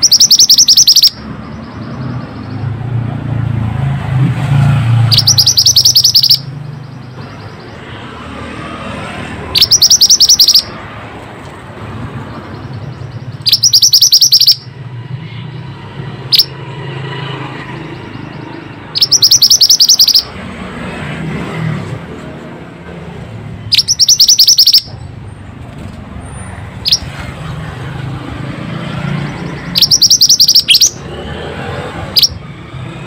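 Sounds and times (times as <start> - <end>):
bird song high trills: 0.0 - 2.9, 5.0 - 8.0, 9.5 - 10.8, 12.3 - 14.8, 16.3 - 16.6, 17.6 - 20.3, 23.7 - 25.0, 26.8 - 27.1, 28.7 - 31.2.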